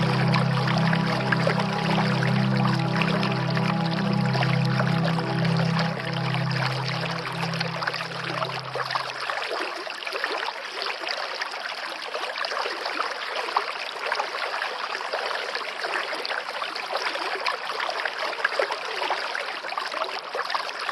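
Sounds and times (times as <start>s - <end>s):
water trickling: 0.0s - 10.9s.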